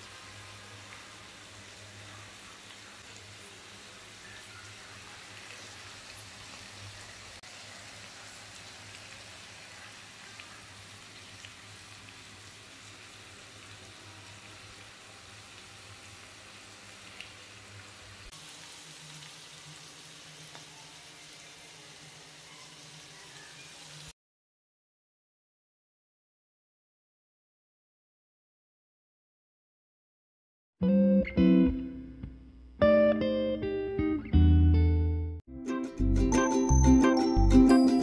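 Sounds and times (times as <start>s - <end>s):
stir-fry sizzling in a pan: 0.0s - 24.2s.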